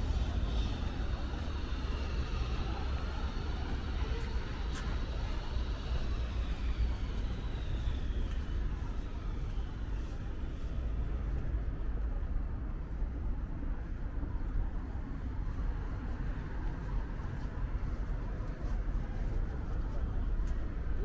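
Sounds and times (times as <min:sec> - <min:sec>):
traffic rumble: 0:00.0 - 0:13.4.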